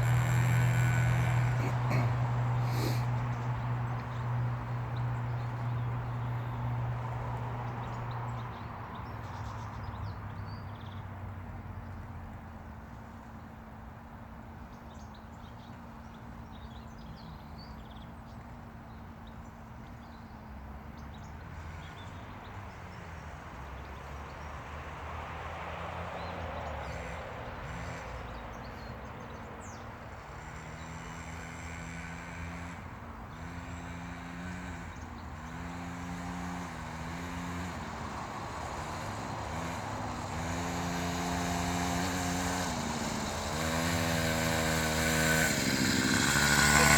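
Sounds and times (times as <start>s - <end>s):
motocross bike engine revving: 0.0s - 6.5s, 27.0s - 28.1s, 30.4s - 46.9s.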